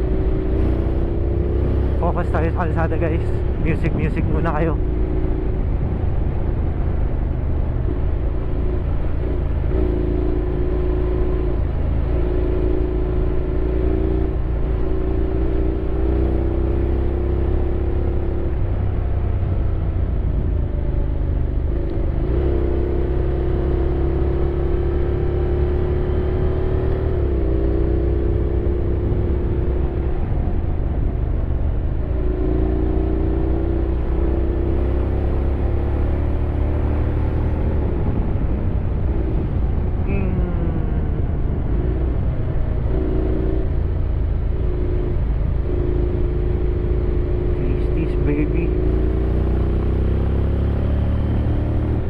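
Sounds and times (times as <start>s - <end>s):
wind rumble: 2.6s - 12.0s, 36.3s - 48.0s
motorcycle engine running: 37.4s - 52.0s.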